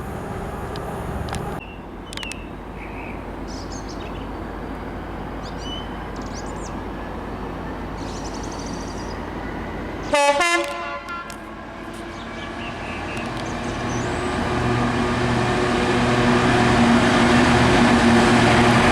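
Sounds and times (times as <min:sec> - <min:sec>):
birds chirping: 0:07.9 - 0:10.2, 0:12.1 - 0:14.3
train horn: 0:10.0 - 0:13.2.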